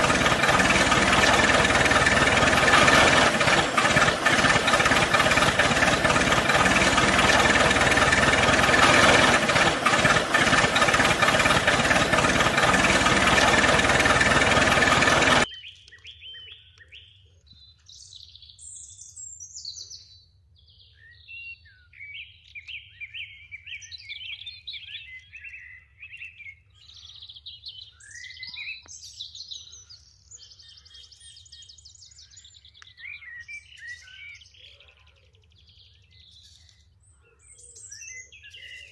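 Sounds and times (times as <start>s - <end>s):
small engine running: 0.0s - 15.5s
birds chirping: 0.0s - 16.3s.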